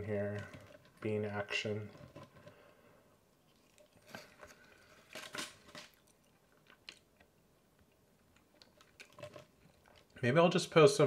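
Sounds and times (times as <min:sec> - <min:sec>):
person chewing: 0:03.4 - 0:10.1.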